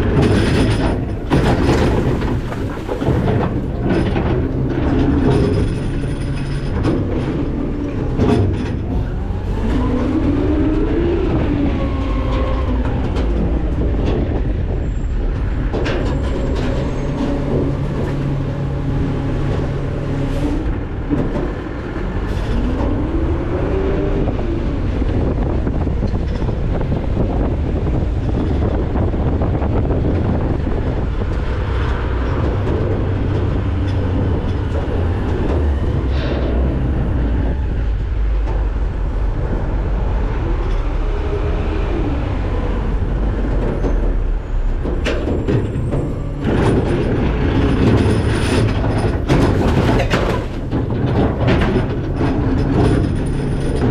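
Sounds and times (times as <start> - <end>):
metal clanks and knocks: 0.0 - 10.2, 12.3 - 20.0, 43.4 - 53.9
garbage truck engine drone: 0.0 - 53.9.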